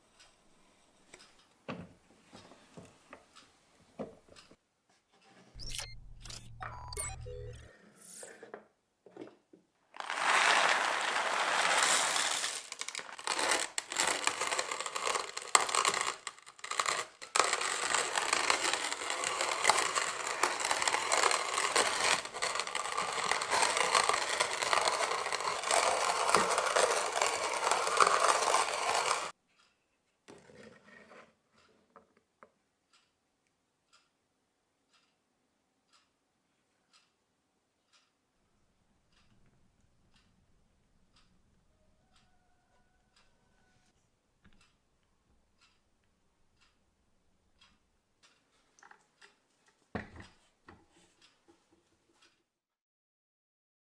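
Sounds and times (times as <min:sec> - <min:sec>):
coffee grinder grinding beans: 0:10.0 - 0:29.4.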